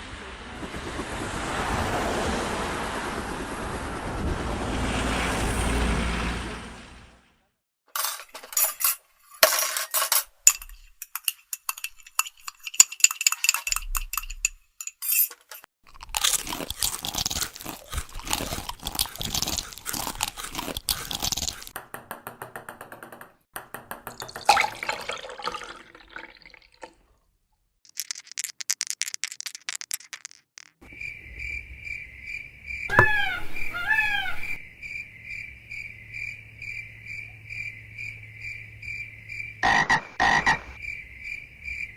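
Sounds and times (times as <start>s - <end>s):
clicks and rattles: 7.9s - 17.6s, 27.9s - 30.8s
falling chirps: 32.9s - 35.0s.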